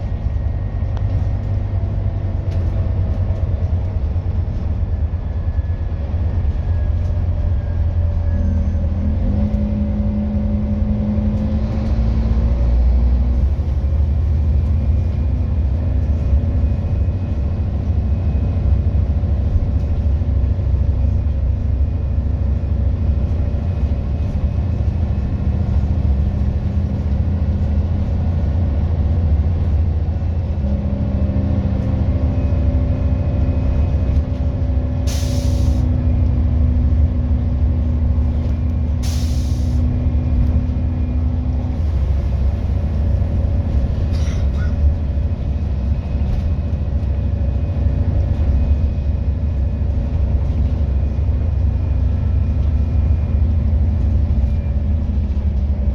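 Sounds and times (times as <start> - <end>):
bus engine running: 0.0 - 55.9
air brake hisses: 35.1 - 35.8, 39.0 - 39.8.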